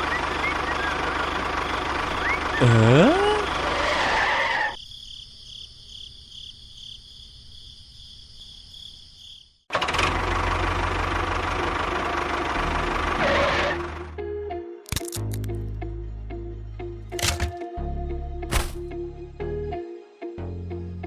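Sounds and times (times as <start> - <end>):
engine running: 0.0 - 4.7, 9.7 - 14.2.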